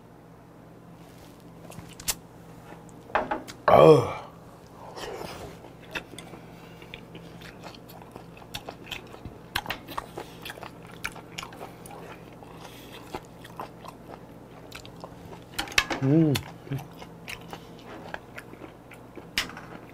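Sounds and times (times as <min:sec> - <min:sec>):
low steady hum: 0:00.0 - 0:19.9
wet chewing and mouth smacks: 0:01.7 - 0:02.2, 0:05.6 - 0:15.7, 0:16.4 - 0:19.9.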